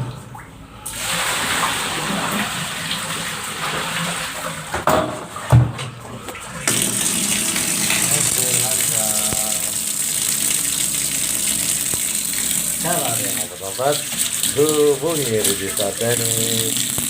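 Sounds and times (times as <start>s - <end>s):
water rushing down a drain: 0.0s - 4.8s, 6.2s - 17.0s.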